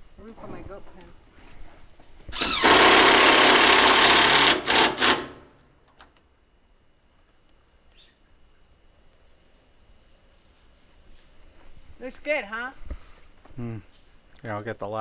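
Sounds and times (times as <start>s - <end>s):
power drill driving a screw: 2.3s - 5.6s.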